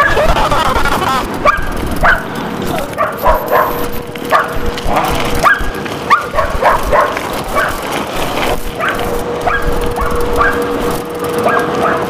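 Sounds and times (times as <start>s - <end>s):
dog yelping: 0.0s - 7.8s, 8.8s - 10.7s, 11.4s - 12.0s
steady hum: 0.0s - 12.0s.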